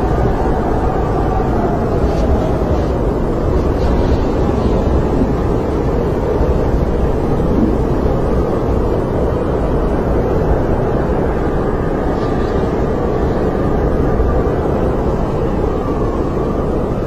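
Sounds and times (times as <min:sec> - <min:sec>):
snowstorm wind rushing: 0:00.0 - 0:17.0.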